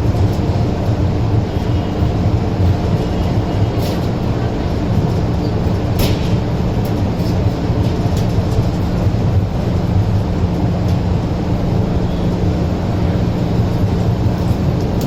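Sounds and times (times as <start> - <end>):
constant low hum: 0.0 - 15.0
moving train rumbling: 0.0 - 15.0.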